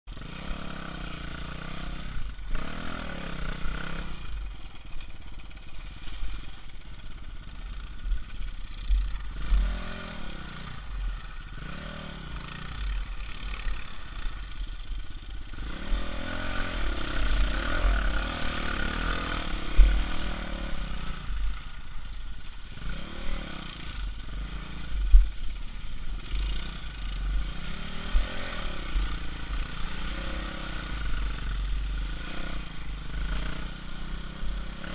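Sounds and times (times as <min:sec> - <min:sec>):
motorcycle engines revving: 0:00.1 - 0:34.9.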